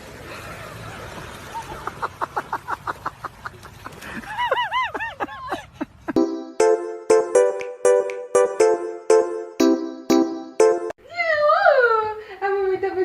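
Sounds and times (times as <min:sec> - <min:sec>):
chiming music: 0:06.2 - 0:11.0.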